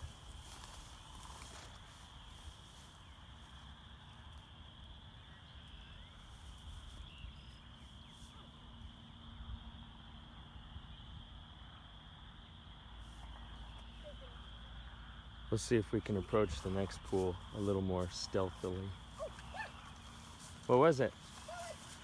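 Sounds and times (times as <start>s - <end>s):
low wind rumble on microphone: 0.0s - 4.0s
chorus of spring peepers: 0.0s - 22.0s.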